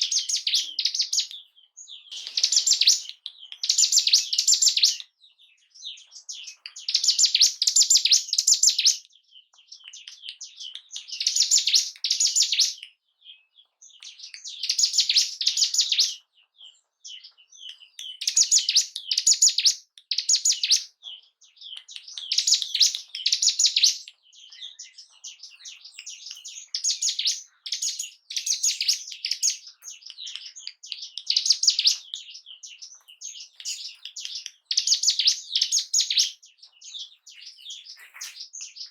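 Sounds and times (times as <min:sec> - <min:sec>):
soft bird chips: 0:00.0 - 0:08.9, 0:17.1 - 0:38.9
bird singing chattering phrases: 0:00.0 - 0:38.9.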